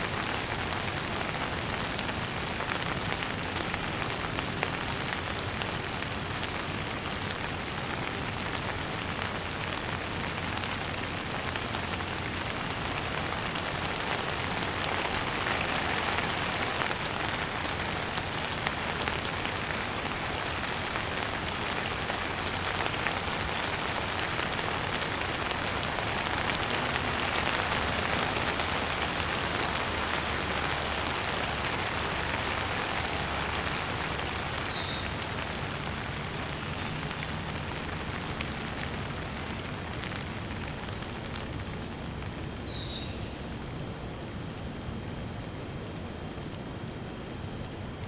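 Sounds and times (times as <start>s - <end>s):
steady rain falling: 0.0s - 48.0s
bird chirping: 42.6s - 43.5s.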